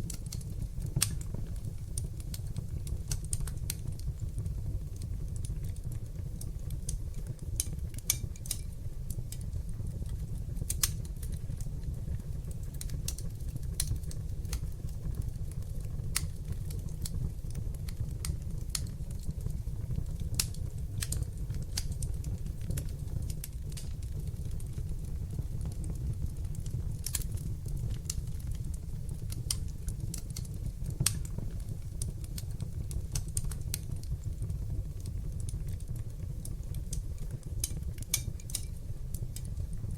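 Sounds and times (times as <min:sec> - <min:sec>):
fire crackling and popping: 0:00.0 - 0:39.9
wood fire flame noise: 0:00.0 - 0:39.9.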